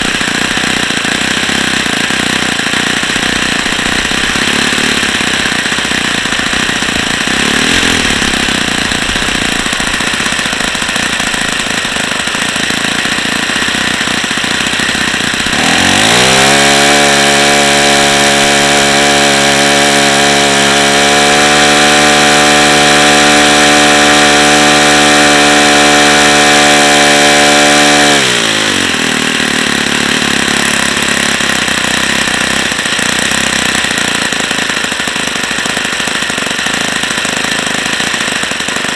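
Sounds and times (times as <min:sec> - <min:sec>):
model engine running: 0:00.0 - 0:38.9.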